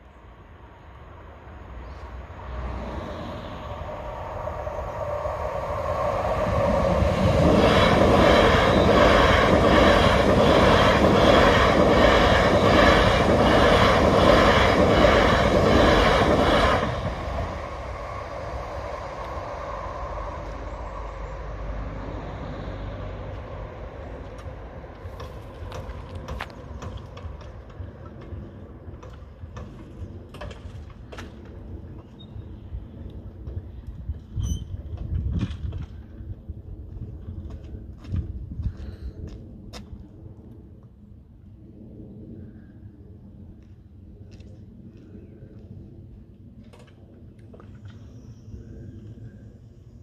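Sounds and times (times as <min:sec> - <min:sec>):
electric train passing: 0:00.0 - 0:38.0
train wheels clattering: 0:24.4 - 0:32.2.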